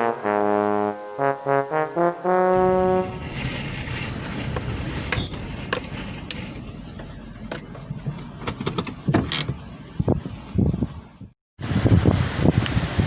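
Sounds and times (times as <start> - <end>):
wind on microphone: 2.6 - 6.8, 9.9 - 13.0
metallic clinks and jangles: 4.5 - 8.0.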